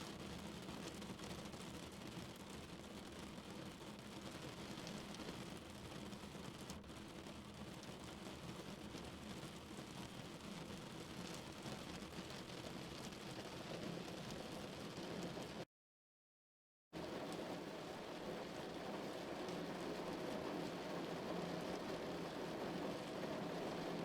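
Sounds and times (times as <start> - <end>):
rain on a car roof: 0.1 - 15.6, 17.0 - 24.0.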